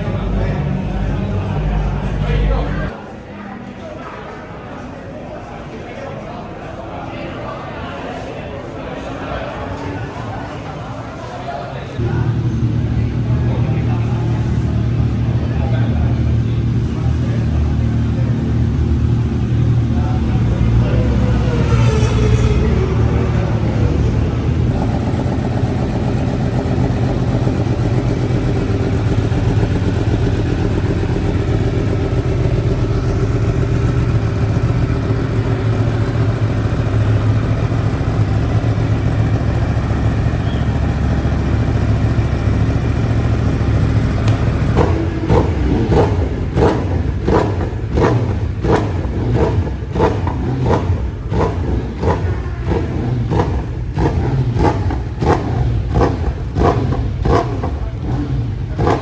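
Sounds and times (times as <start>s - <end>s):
regular pulsing: 0.0s - 2.9s, 12.0s - 44.8s
motorcycle engine rumbling: 0.0s - 3.0s, 12.0s - 59.0s.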